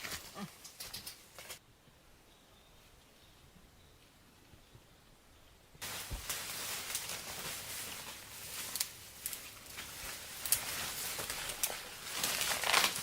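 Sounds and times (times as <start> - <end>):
footsteps in dry leaves: 5.8 - 13.0.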